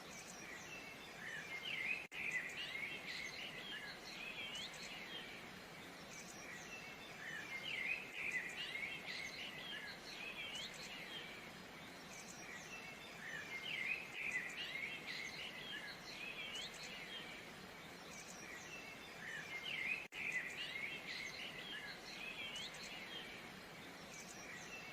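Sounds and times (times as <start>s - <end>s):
faint background hiss: 0.0s - 24.9s
small birds chirping and singing: 0.0s - 24.9s.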